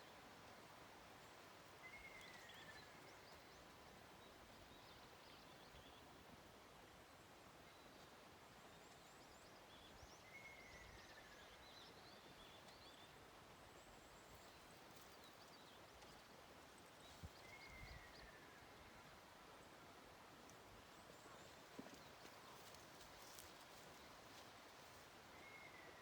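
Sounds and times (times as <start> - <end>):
small birds chirping: 20.9 - 26.0.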